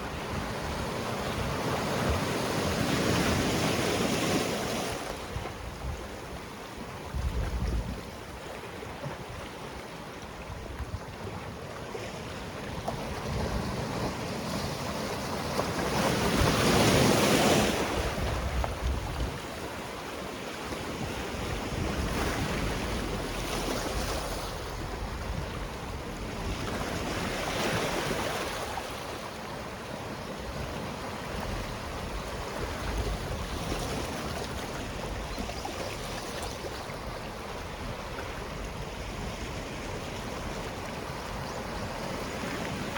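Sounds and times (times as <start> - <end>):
wind buffeting microphone: 7.0 - 8.4, 13.1 - 19.7, 20.9 - 28.6.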